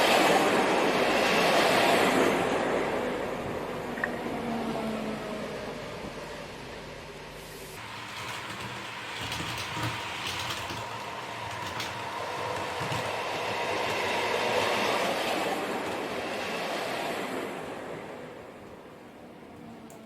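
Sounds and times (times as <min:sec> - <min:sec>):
model train running: 0:04.9 - 0:20.0
wheels clicking over rail joints: 0:07.8 - 0:18.9.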